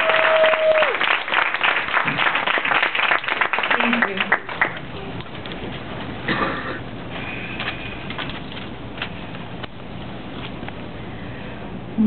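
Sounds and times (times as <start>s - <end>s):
person cheering: 0.0s - 1.0s
audience applauding: 0.0s - 5.3s.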